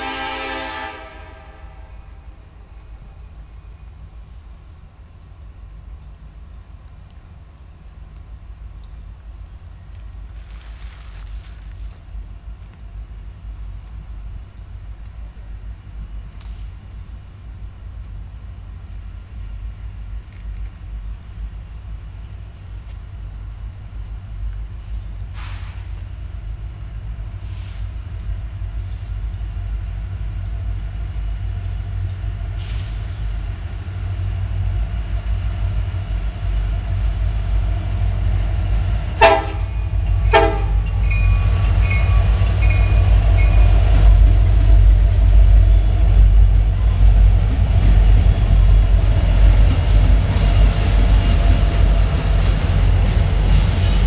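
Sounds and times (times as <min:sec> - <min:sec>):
train horn blasts: 0:00.0 - 0:02.4, 0:39.2 - 0:43.8
diesel locomotive engine rumble: 0:00.0 - 0:54.0
train clattering by: 0:00.0 - 0:54.0.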